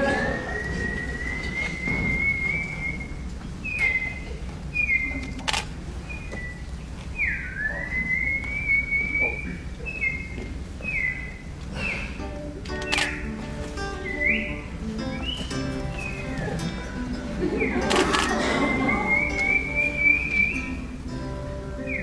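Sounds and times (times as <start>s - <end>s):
whistled bird call: 0.4s - 12.2s, 14.0s - 16.3s, 17.6s - 20.8s, 21.8s - 22.0s
sharp click: 12.7s - 13.2s.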